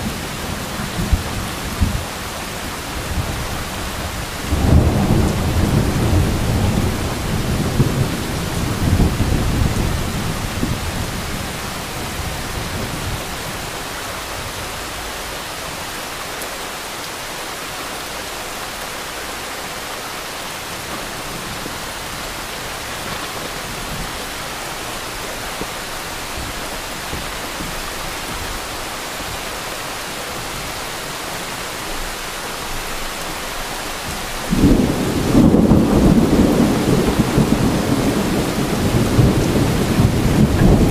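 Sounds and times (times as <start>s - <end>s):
thunder rumbling: 0.0s - 15.2s, 34.0s - 40.9s
heavy rain pouring: 0.0s - 40.9s.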